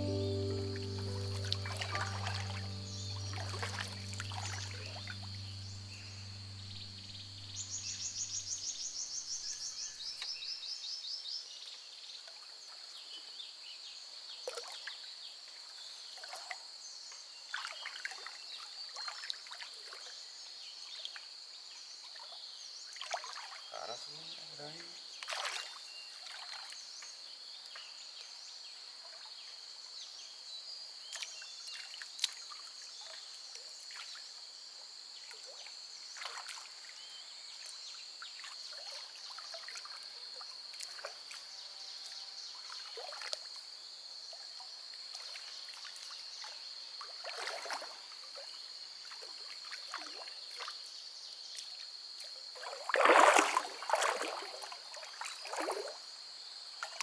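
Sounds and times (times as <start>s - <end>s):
water splashing and sloshing: 0.0s - 7.8s, 25.2s - 26.8s, 36.2s - 36.9s, 38.5s - 41.4s, 42.8s - 43.6s, 47.2s - 48.0s, 52.6s - 56.1s.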